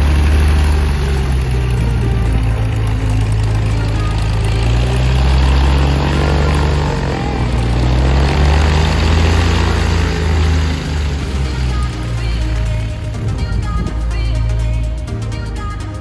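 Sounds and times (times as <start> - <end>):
propeller airplane engine drone: 0.0 - 16.0.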